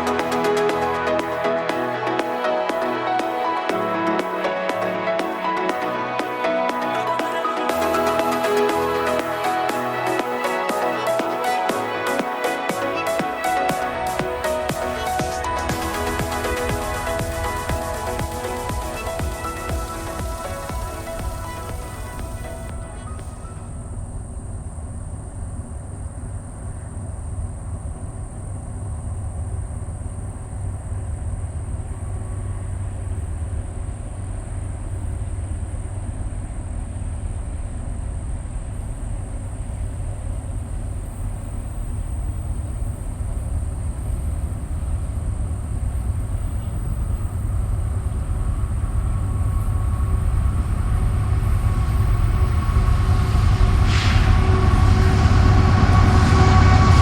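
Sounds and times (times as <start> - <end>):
locomotive low rumble: 13.8 - 57.0.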